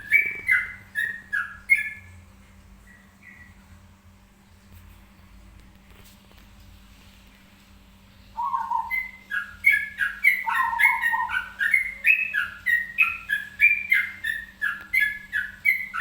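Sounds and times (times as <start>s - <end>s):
songbird singing: 0.0s - 3.6s, 8.2s - 16.0s.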